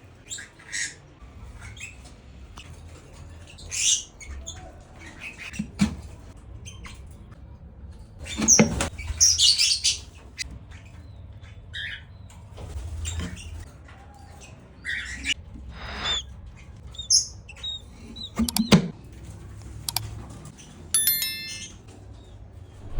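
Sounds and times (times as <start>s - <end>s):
parrot chirping and calling: 15.2s - 16.2s.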